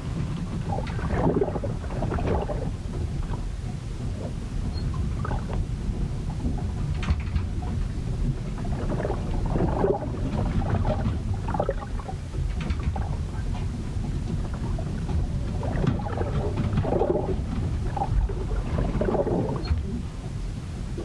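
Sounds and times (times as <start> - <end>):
low rumble of wind and water: 0.0 - 21.0.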